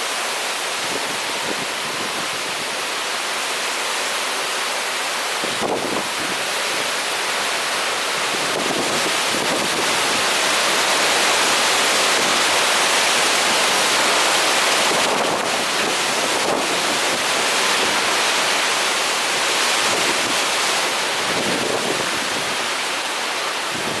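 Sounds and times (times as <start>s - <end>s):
heavy rain: 0.0s - 24.0s
strong wind: 0.7s - 3.0s, 5.3s - 24.0s.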